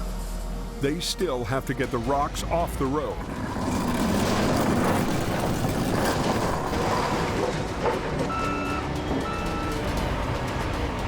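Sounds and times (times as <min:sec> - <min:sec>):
diesel engine running: 0:01.6 - 0:11.0
backup alarm beeps: 0:08.3 - 0:09.8.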